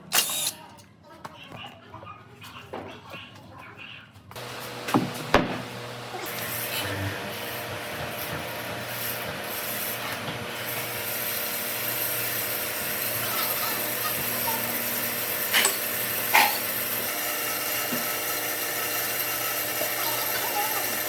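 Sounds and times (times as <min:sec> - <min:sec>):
tool scraping wood: 0:04.4 - 0:21.0
sharp knocks: 0:04.8 - 0:05.8.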